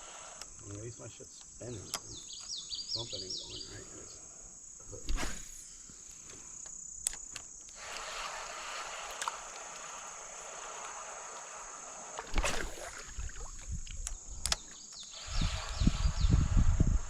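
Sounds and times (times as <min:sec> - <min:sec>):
high insect drone: 0:00.0 - 0:17.0
sharp clicks: 0:06.6 - 0:08.1, 0:13.8 - 0:15.2
splash-like rush: 0:07.8 - 0:13.7.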